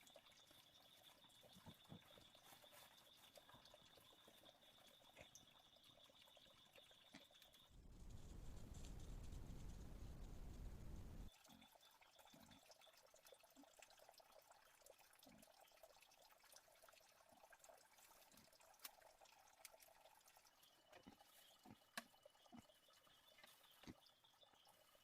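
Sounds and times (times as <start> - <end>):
faint crackling hiss: 7.7 - 11.3.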